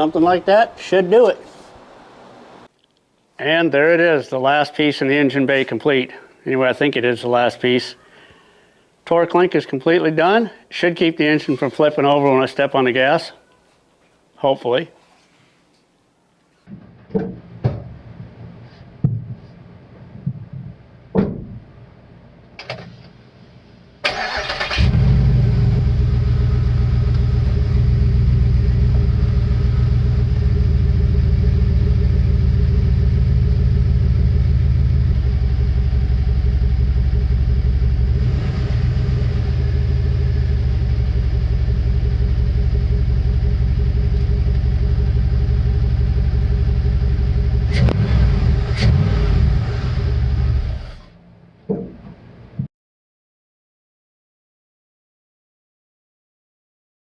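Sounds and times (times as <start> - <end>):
engine starting and idling: 24.0 - 51.2.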